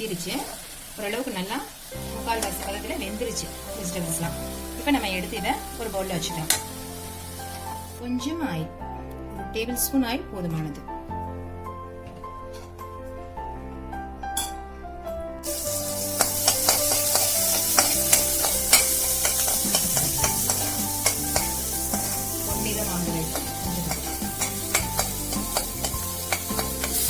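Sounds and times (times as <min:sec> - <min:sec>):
food sizzling in hot oil: 0:00.0 - 0:08.5, 0:15.4 - 0:27.0
spatula scraping pan: 0:02.0 - 0:06.8, 0:15.5 - 0:27.0.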